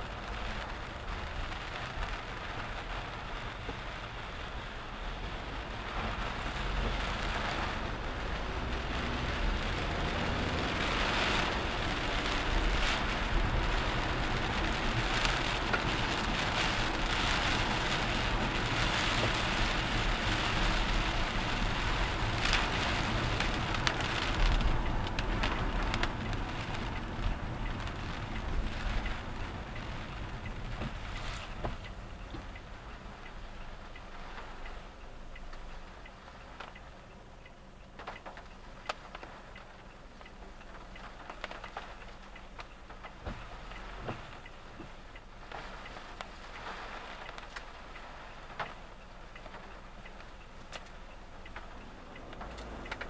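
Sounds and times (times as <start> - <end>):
car engine and road rumble: 0.0 - 53.0
rain and tyres hissing on wet road: 0.0 - 53.0.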